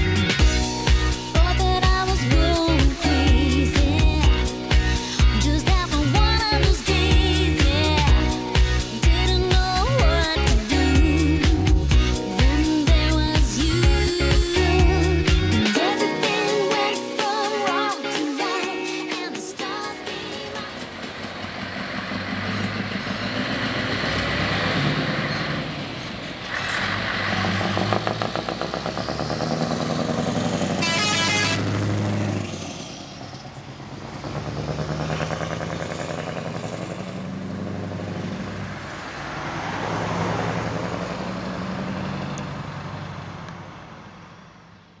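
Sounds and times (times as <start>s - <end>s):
diesel truck accelerating through gears: 0.0s - 15.9s, 20.4s - 45.0s
air horn blast: 30.7s - 31.9s.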